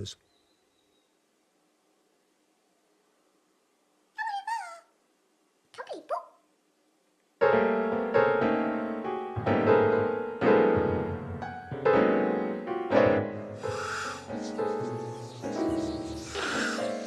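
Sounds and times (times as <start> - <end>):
slow sad piano music: 7.4 - 17.0.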